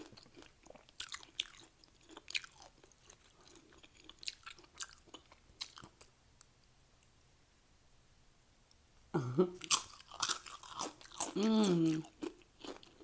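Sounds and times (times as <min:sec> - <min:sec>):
chewing crunchy chips: 0:00.0 - 0:06.1, 0:09.6 - 0:13.0.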